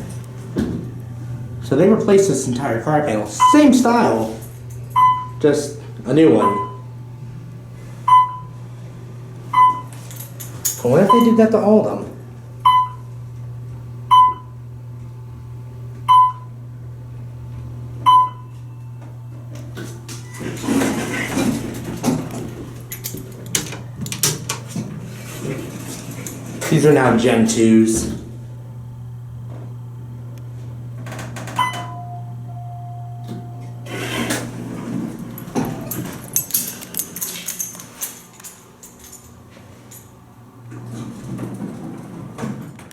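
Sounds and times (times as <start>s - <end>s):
low hum in elevator car: 0.0s - 36.4s
elevator electronic chime: 3.4s - 3.9s, 4.9s - 5.4s, 6.4s - 6.9s, 8.1s - 8.6s, 9.5s - 9.9s, 11.1s - 11.5s, 12.6s - 13.1s, 14.1s - 14.6s, 16.1s - 16.5s, 18.1s - 19.0s, 31.6s - 33.9s
elevator clicks and clatter: 19.5s - 27.2s, 31.0s - 42.9s.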